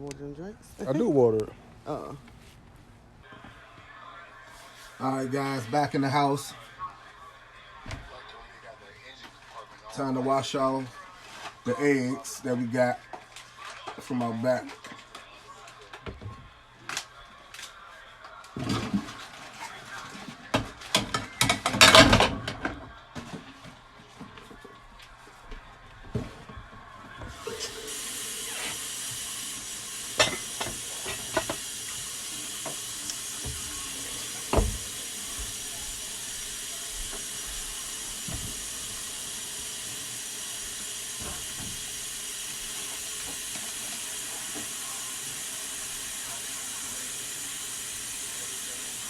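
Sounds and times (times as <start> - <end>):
tap water running into sink: 27.2 - 49.0.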